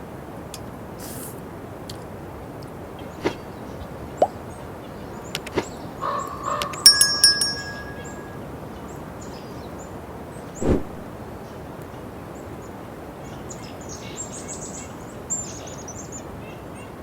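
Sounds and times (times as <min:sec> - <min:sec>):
metallic clink: 0:06.8 - 0:08.2.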